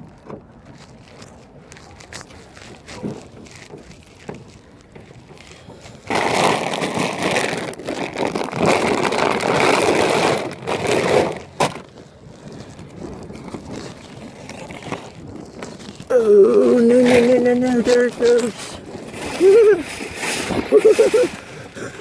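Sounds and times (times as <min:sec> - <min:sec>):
shopping cart wheels rattling: 0:01.8 - 0:22.0.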